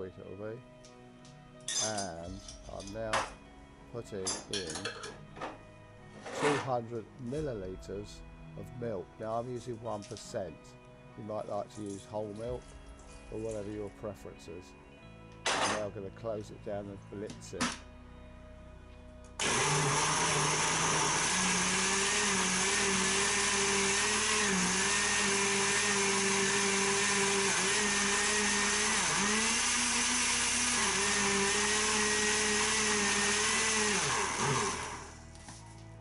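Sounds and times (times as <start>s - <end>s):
blender motor running: 19.4s - 35.3s.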